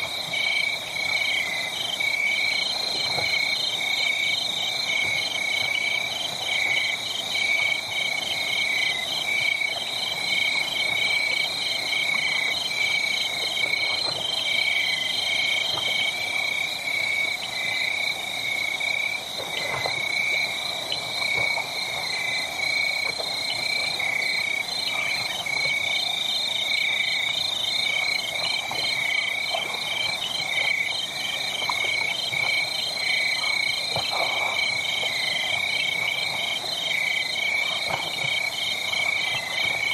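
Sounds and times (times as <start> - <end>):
crickets and insects trilling: 0.0 - 39.9.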